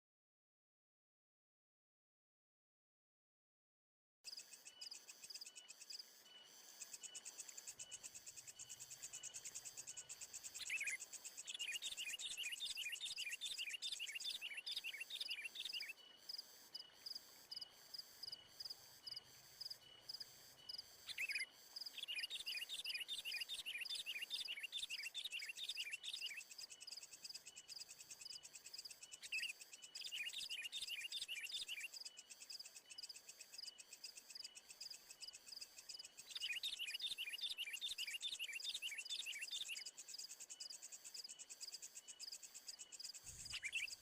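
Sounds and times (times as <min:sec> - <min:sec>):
bird chirping rapidly: 0:43.3 - 0:44.0.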